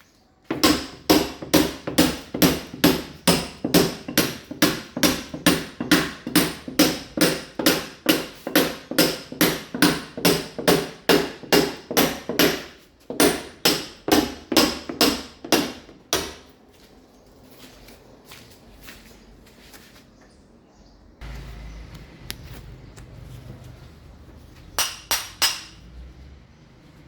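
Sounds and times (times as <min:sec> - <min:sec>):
hammer chipping masonry wall: 0:00.4 - 0:16.5, 0:24.7 - 0:25.8.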